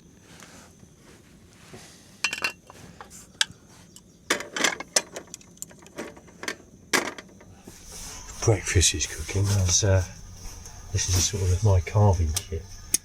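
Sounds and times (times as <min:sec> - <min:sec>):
metal cookware clinking: 0:02.3 - 0:02.7.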